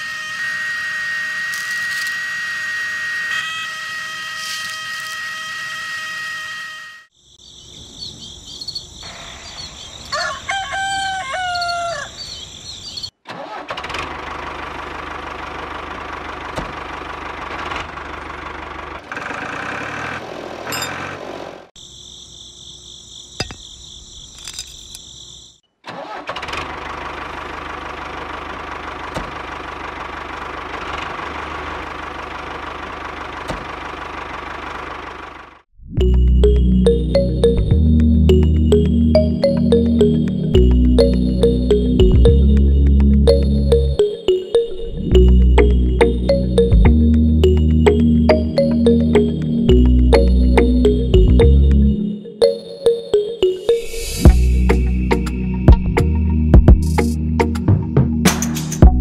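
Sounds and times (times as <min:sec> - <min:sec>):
rooster crowing: 0:10.0 - 0:12.4.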